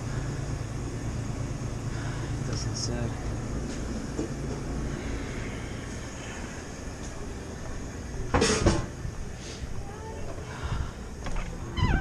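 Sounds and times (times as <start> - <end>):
refrigeration unit humming: 0.0 - 12.0
loud high squeal: 11.7 - 12.0.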